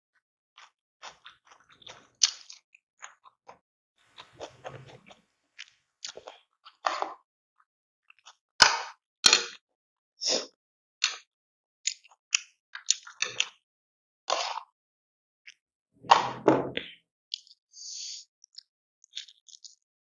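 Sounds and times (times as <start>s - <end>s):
crunch of food: 0.6s - 3.6s
person chewing and biting: 1.0s - 2.6s, 4.2s - 6.4s.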